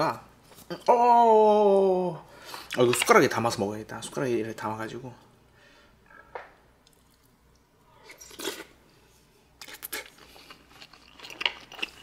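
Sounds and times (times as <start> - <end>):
wet chewing: 9.6 - 12.0.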